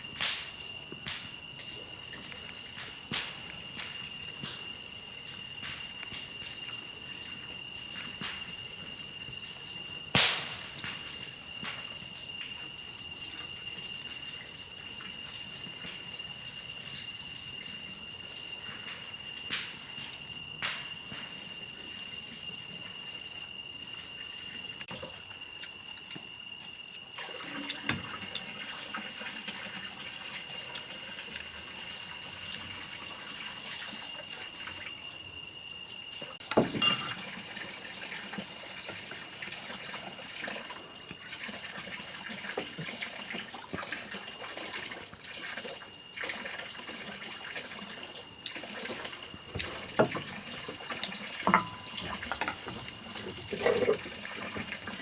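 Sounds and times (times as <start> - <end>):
high insect trill: 0.0 - 55.0
water splashing and dribbling: 26.9 - 55.0
small irregular knocks: 49.4 - 54.8.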